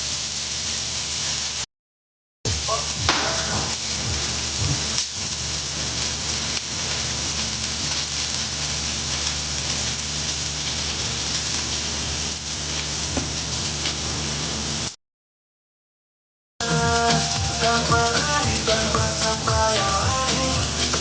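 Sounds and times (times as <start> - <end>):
dense hiss: 2.5 - 14.2, 16.6 - 21.0.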